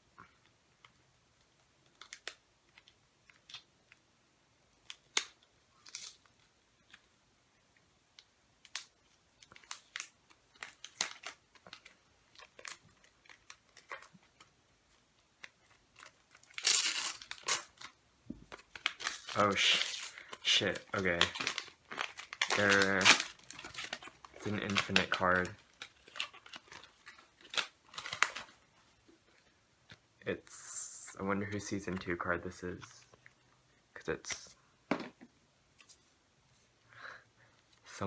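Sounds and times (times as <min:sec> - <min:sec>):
packaging tearing and crinkling: 0:04.8 - 0:07.0, 0:08.6 - 0:14.5, 0:15.4 - 0:28.6
packaging clicks and rustles: 0:08.6 - 0:28.6.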